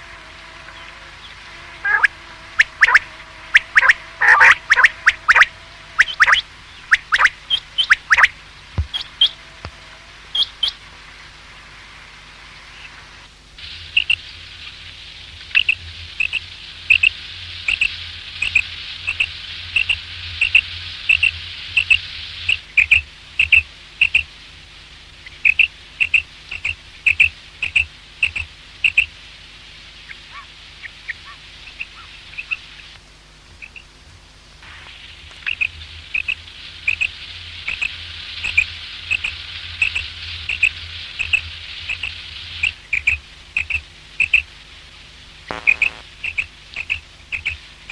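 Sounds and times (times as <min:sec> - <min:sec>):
background hiss: 0:00.0 - 0:47.9
quail calling: 0:01.8 - 0:08.3, 0:17.7 - 0:24.2, 0:35.5 - 0:37.1, 0:37.7 - 0:44.4, 0:45.5 - 0:47.6.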